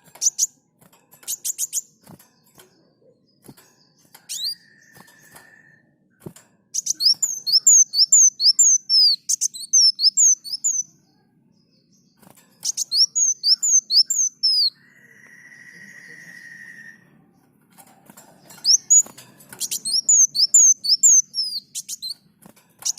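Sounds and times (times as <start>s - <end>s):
sunbird singing: 6.7s - 17.6s, 18.4s - 22.9s.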